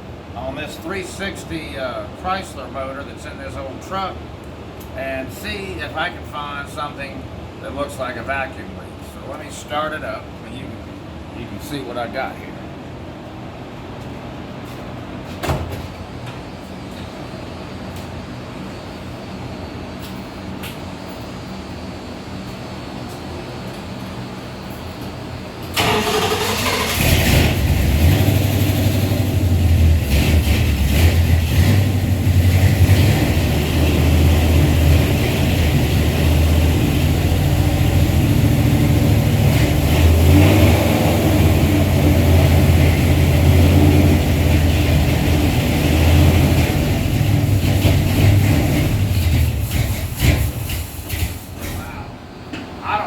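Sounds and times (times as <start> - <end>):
engine cranking and idling unsteadily: 25.8 - 51.8.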